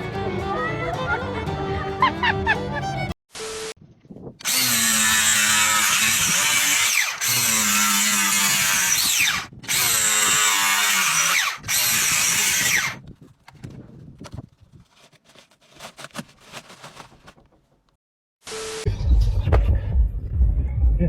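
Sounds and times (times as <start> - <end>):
power tool running: 4.4 - 13.0.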